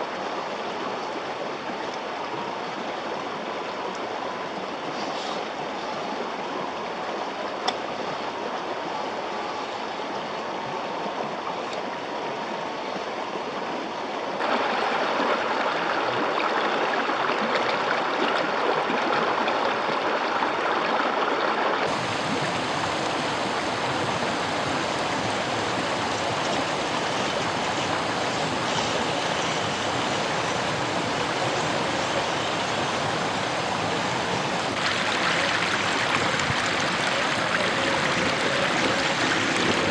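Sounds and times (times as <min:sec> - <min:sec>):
river rushing over rocks: 0:14.3 - 0:19.0, 0:19.8 - 0:39.9.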